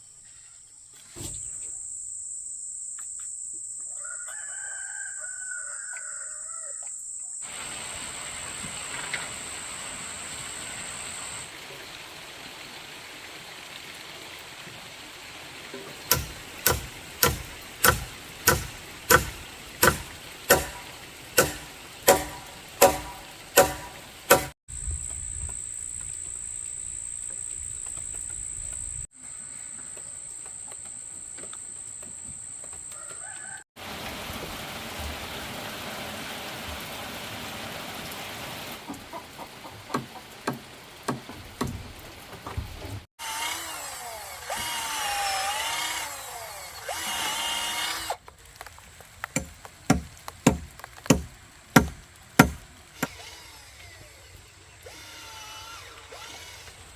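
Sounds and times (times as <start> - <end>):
rooster crowing: 3.9 - 6.9, 32.9 - 33.7.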